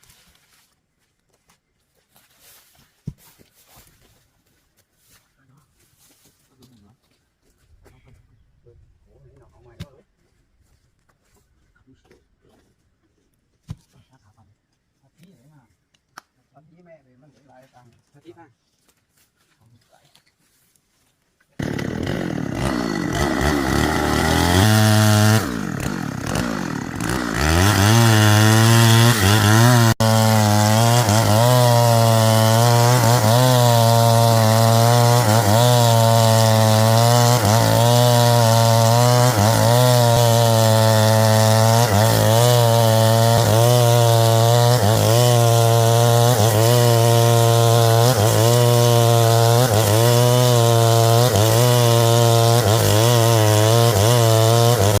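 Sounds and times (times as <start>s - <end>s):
chainsaw sawing wood: 21.4s - 55.0s.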